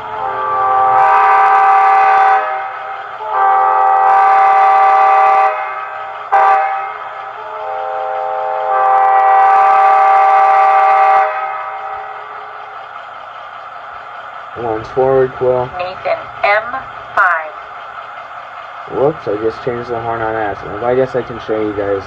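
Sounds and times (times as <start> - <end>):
diesel air horn blasts: 0.0 - 12.6.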